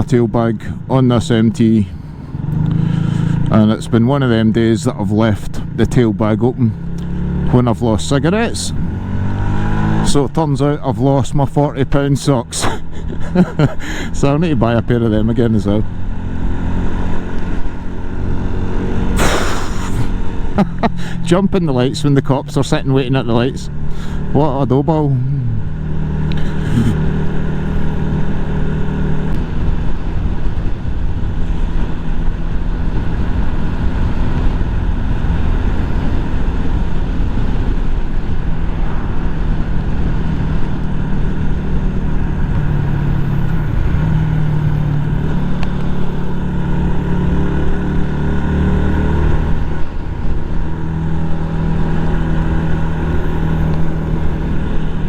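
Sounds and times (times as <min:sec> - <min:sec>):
motorcycle engine running: 0:00.0 - 0:11.6, 0:12.2 - 0:55.0
road noise: 0:00.0 - 0:55.0
wind noise: 0:28.2 - 0:55.0.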